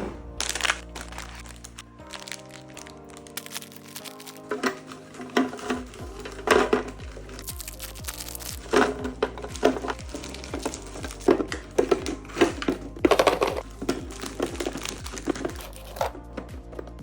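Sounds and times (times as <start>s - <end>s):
packets knocking: 0.0s - 17.0s
plastic wrappers crinkling: 0.3s - 17.0s
background music with bass beat: 5.8s - 17.0s.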